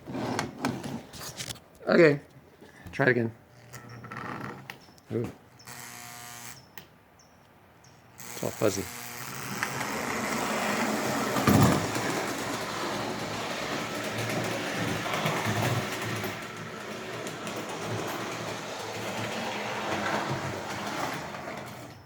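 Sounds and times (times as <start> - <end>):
model train motor whir: 5.6 - 6.6, 8.2 - 22.0
train wheel rattle: 9.5 - 22.0
train clatter: 9.6 - 22.0.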